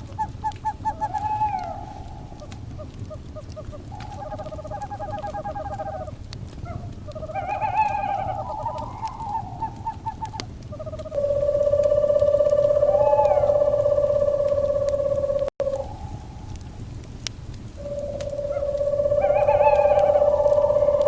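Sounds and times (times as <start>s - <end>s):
owls hooting: 0.0s - 16.6s, 17.8s - 21.0s
fire crackling and popping: 0.0s - 21.0s
low steady rumble: 8.1s - 21.0s
steady humming tone: 11.2s - 16.9s, 17.7s - 21.0s.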